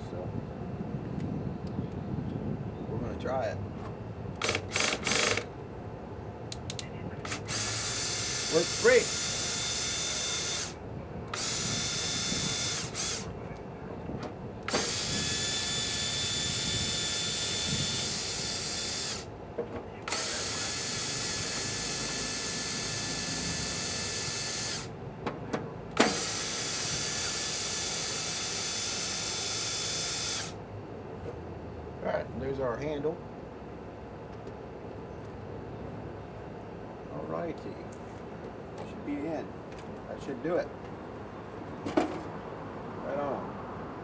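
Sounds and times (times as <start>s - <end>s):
power drill whining: 4.4s - 5.5s, 7.2s - 13.3s, 14.7s - 19.3s, 20.0s - 24.9s, 26.0s - 30.6s.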